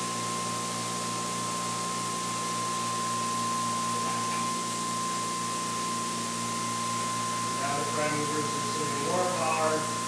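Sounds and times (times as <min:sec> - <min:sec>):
generator humming: 0:07.3 - 0:10.0.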